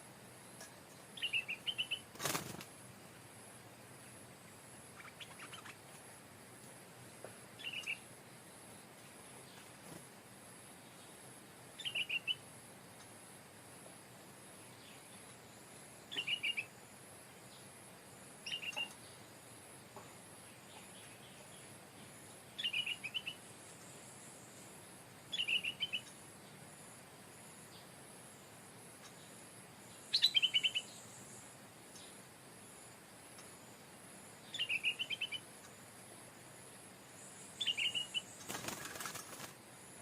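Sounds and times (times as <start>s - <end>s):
bulbul singing: 1.2s - 2.1s, 16.1s - 16.7s, 18.4s - 19.1s, 25.3s - 26.2s, 30.0s - 31.1s, 34.5s - 35.5s, 37.6s - 38.8s.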